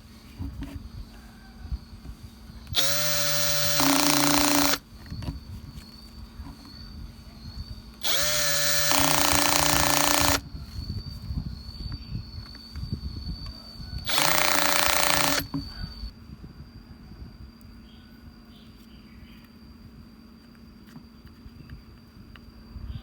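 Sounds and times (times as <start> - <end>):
faint high whine: 0.0 - 23.0
angle grinder motor whining: 2.7 - 5.9, 8.0 - 10.4, 13.4 - 16.1.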